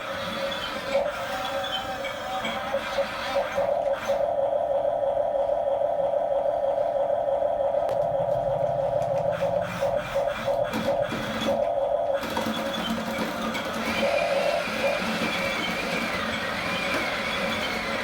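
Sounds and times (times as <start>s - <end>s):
toy electric motors whining: 0.0s - 4.3s, 9.0s - 18.0s.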